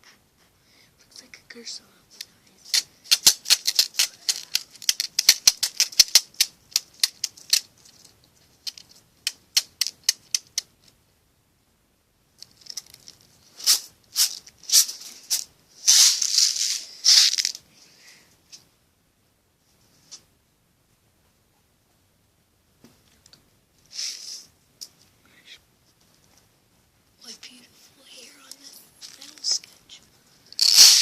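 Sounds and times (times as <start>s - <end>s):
pin art toy pins clicking: 2.2s - 10.9s, 30.6s - 31.0s.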